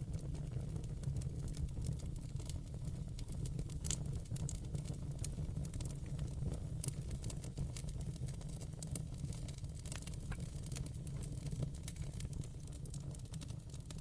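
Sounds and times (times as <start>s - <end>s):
rumble of flame: 0.0s - 14.0s
wood fire crackling: 0.0s - 14.0s
sharp pops of fire: 0.1s - 14.0s.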